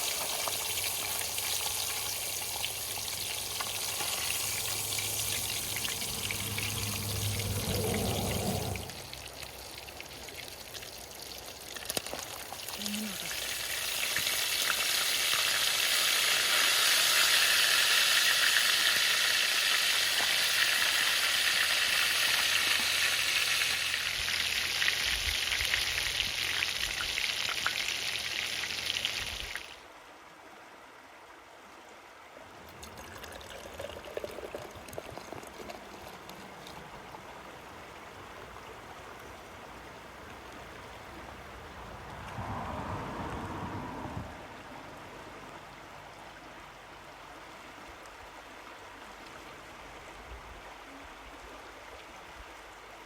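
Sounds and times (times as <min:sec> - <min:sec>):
fish frying in hot oil: 0:00.0 - 0:29.7
faint trickling: 0:00.8 - 0:14.0.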